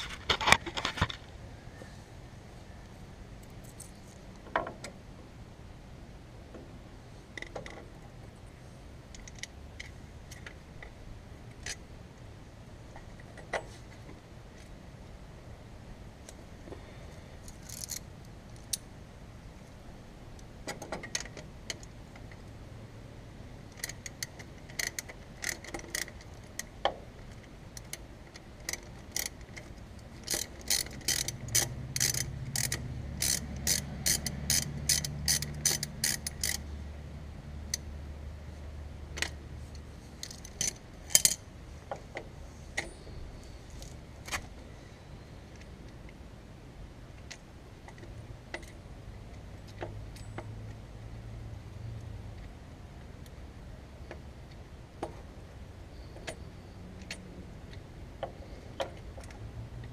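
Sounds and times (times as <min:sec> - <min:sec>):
ratchet wrench clicking: 0:17.5 - 0:18.0, 0:23.8 - 0:26.7, 0:28.7 - 0:36.6, 0:40.2 - 0:41.4.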